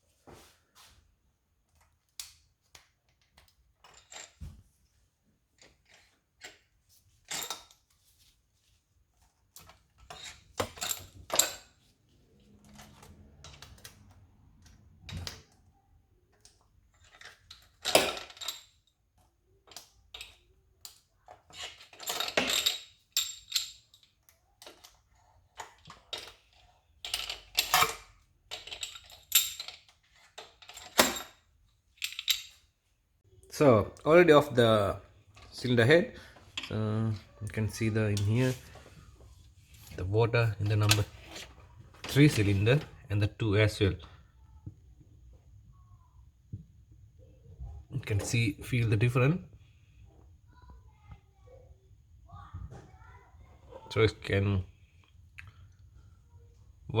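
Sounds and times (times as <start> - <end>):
metal tools clinking: 3.8 - 4.5, 5.6 - 7.9, 10.0 - 11.8, 16.9 - 18.9, 21.5 - 25.0, 25.6 - 32.6.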